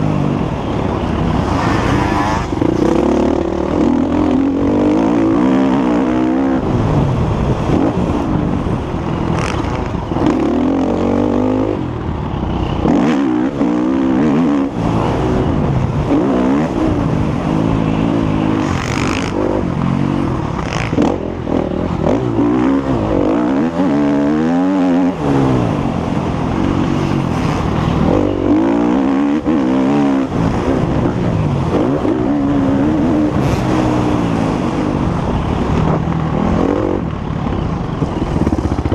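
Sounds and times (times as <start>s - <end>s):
motocross bike engine revving: 1.2s - 6.9s, 9.3s - 11.8s, 12.8s - 35.3s.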